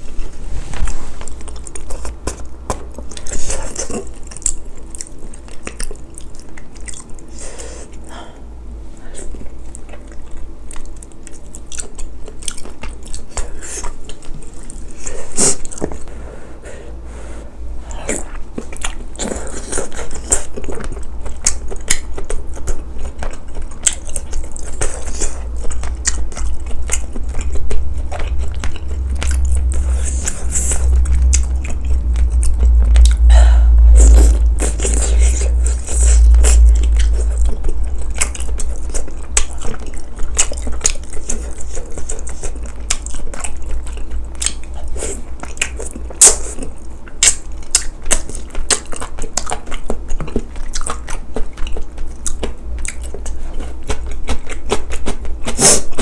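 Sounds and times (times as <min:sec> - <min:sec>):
person chewing food: 0:00.0 - 0:56.0
deep rumble: 0:22.2 - 0:44.8.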